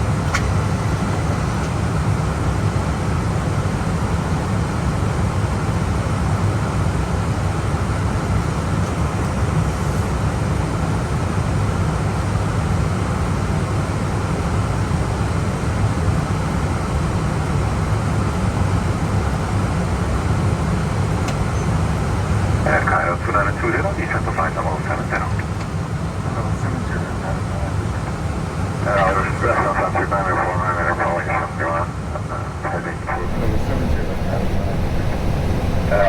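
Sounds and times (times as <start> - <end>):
aircraft engine noise: 0.0 - 36.0
airflow rushing in cockpit: 18.8 - 36.0.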